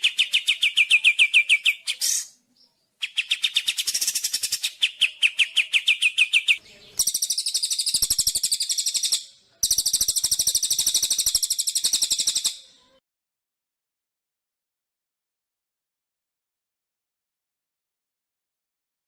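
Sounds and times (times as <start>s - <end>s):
songbird trilling: 3.0s - 12.7s.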